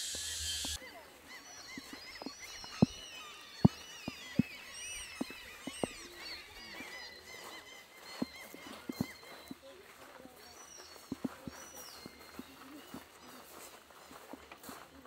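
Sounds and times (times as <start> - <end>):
steady hiss: 0.0 - 0.8
birds chirping: 0.0 - 15.0.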